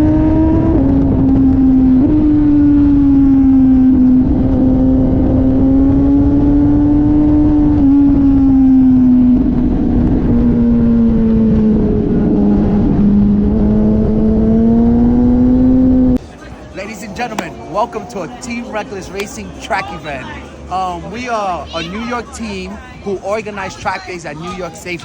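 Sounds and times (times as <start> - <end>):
motorcycle engine at high revs: 0.0 - 16.2
wind noise rushing: 0.0 - 16.2.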